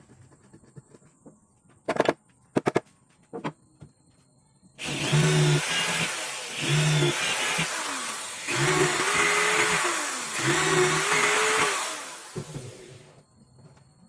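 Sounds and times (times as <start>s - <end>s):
electric power tool running: 4.8s - 13.0s.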